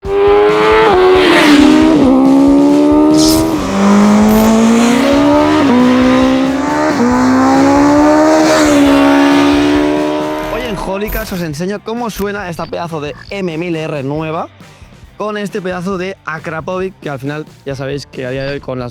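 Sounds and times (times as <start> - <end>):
motorcycle engine shifting gears: 0.0 - 10.9.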